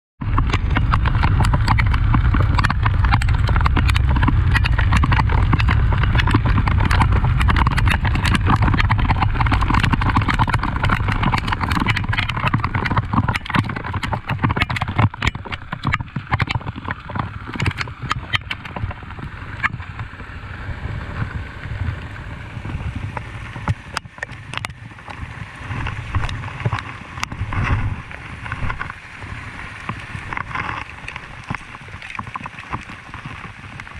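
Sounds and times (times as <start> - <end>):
loud low rumble: 0.2 - 11.2
rain drops striking phone: 0.2 - 20.2.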